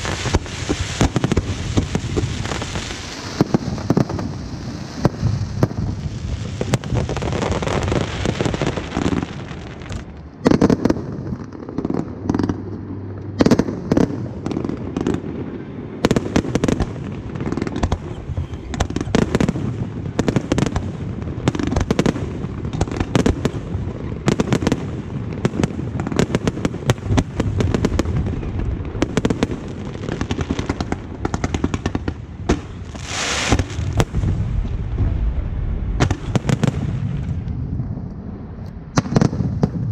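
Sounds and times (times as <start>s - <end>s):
firework hiss: 0.0s - 10.0s, 32.6s - 35.2s
fireworks bangs and crackles: 0.0s - 39.9s
continuous low rumble: 9.4s - 33.0s, 33.6s - 39.9s.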